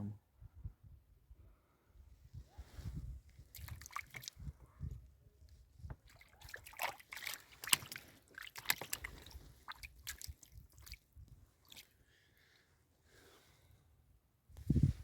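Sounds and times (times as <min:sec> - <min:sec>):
water splashing and sloshing: 0:03.3 - 0:04.6, 0:05.8 - 0:12.0.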